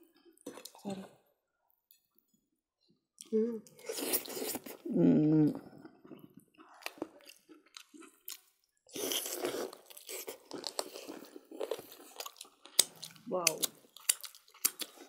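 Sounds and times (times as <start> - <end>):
people chewing and smacking: 0.0 - 2.5, 3.2 - 15.0
person humming: 3.3 - 3.7, 4.9 - 5.6.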